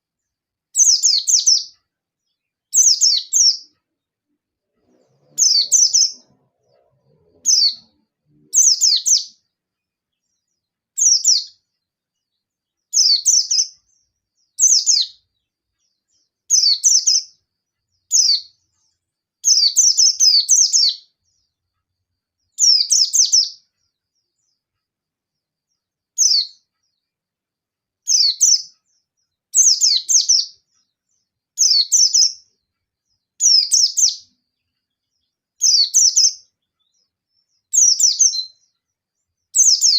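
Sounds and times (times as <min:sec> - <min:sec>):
bird fast twittering bursts: 0:05.2 - 0:06.2.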